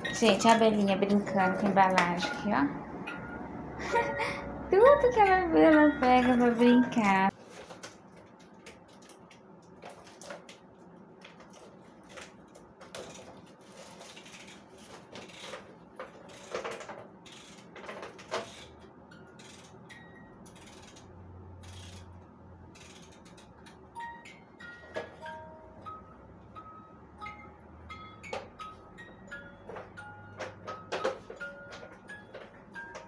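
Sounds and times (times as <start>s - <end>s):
packaging rustling and clicking: 6.1s - 18.8s.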